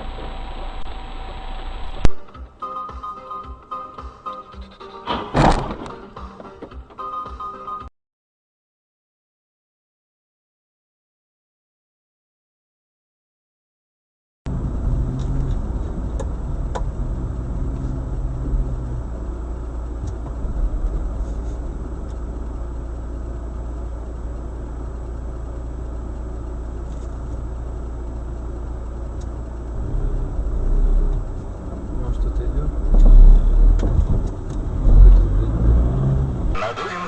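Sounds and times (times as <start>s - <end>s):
low hum: 0.0s - 2.3s, 14.5s - 37.0s
car engine and road noise: 0.0s - 7.9s, 14.5s - 37.0s.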